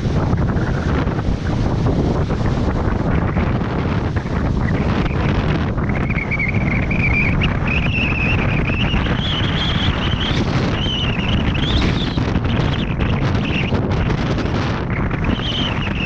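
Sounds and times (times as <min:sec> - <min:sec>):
high wavering whine: 0:00.0 - 0:16.0
wind buffeting microphone: 0:00.0 - 0:16.0.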